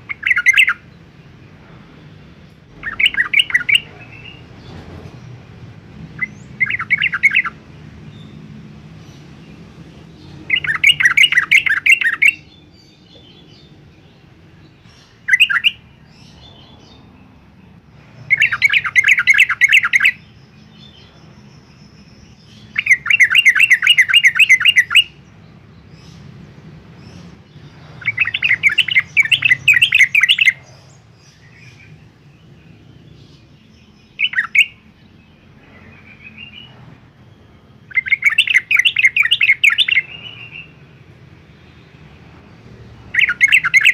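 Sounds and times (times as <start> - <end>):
bird single calls: 2.7 - 4.4, 34.1 - 34.9, 43.1 - 43.9
bird singing bubbling notes: 2.8 - 4.4.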